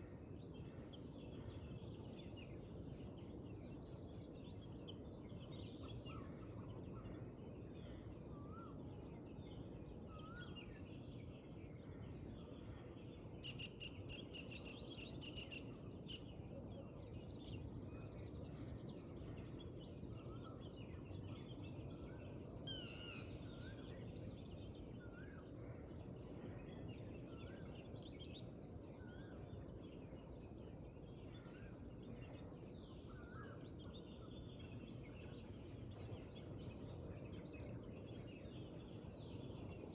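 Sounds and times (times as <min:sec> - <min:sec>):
birds singing and chirping: 0:22.7 - 0:23.4
quick sweeping bird call: 0:22.7 - 0:23.4
bird trill: 0:22.7 - 0:23.8.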